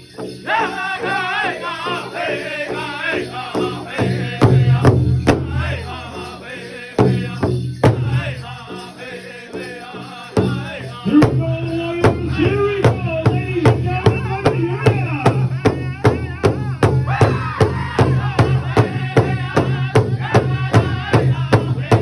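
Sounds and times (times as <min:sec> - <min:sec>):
voices singing together: 0:00.0 - 0:22.0.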